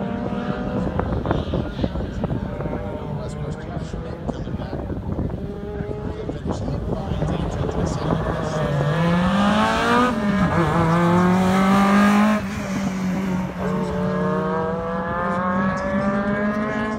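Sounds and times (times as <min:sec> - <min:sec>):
car engine accelerating: 0:05.0 - 0:16.9.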